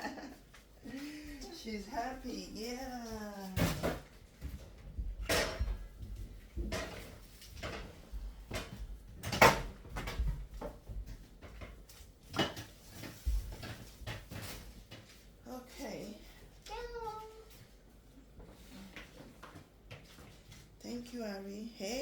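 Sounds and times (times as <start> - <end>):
kitchen knocks and clunks: 3.4 - 15.2.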